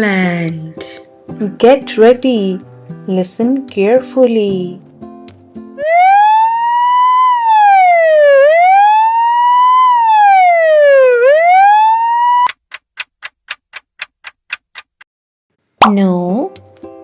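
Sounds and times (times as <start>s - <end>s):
ambulance siren wailing: 5.8s - 12.5s
short regular ticks: 12.5s - 15.1s.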